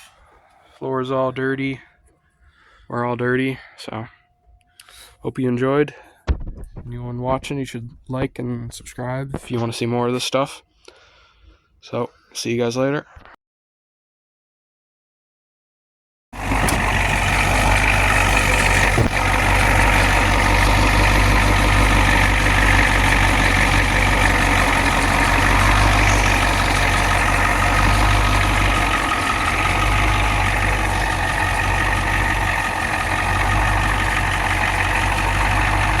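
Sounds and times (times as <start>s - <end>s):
engine idling: 16.4s - 36.0s.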